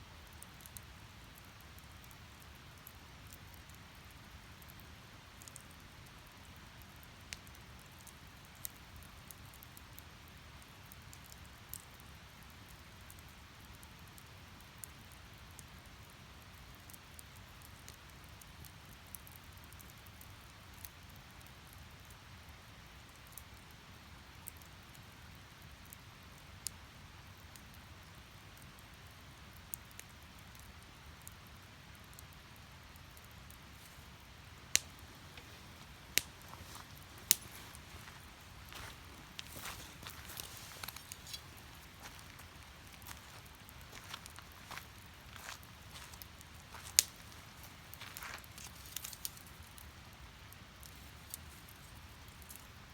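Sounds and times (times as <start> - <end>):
burning logs snapping: 33.4 - 52.8.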